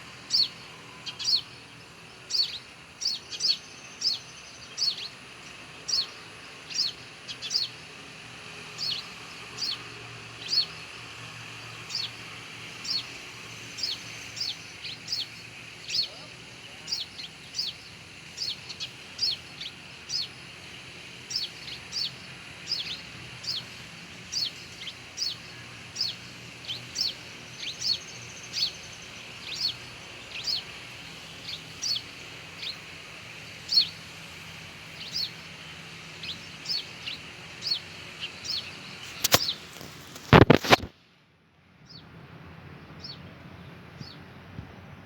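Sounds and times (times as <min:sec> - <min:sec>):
bird chirping: 0:00.2 - 0:07.9, 0:08.8 - 0:11.0, 0:11.6 - 0:34.1, 0:34.8 - 0:40.8.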